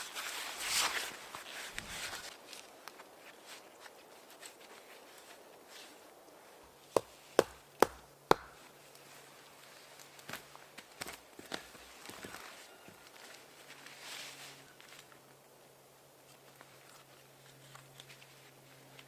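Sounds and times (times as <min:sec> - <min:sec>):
sharp chopping strikes: 0:07.0 - 0:08.6.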